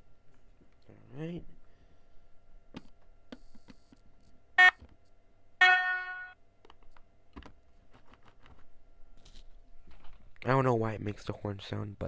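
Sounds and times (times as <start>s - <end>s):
model locomotive horn from small speaker: 5.6s - 6.4s.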